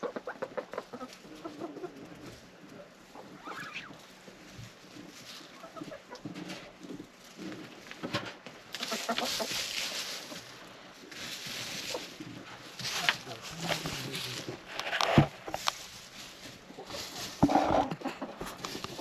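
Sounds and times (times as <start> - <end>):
hens clucking softly: 0.0 - 19.0
hissing rustling noise: 6.4 - 19.0.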